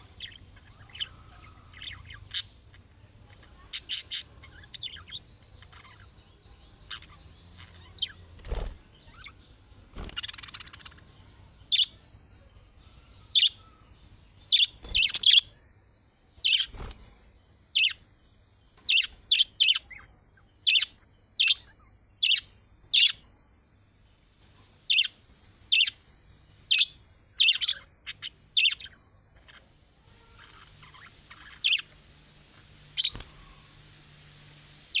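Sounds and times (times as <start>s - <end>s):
budgerigars chirping: 0.0s - 12.0s, 12.9s - 15.5s, 16.4s - 16.9s, 17.8s - 18.0s, 18.9s - 23.2s, 24.9s - 26.0s, 26.7s - 32.0s, 33.0s - 33.6s.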